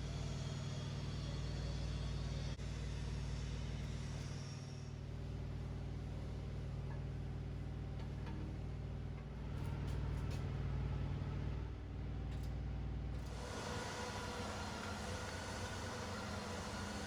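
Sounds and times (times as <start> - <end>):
low motor hum: 13.3 - 17.0.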